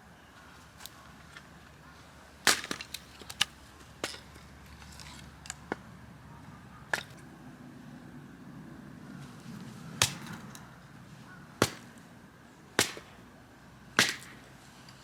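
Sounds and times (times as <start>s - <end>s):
firewood cracking and snapping: 2.5s - 4.3s, 10.0s - 10.5s, 11.6s - 12.0s, 14.0s - 14.5s.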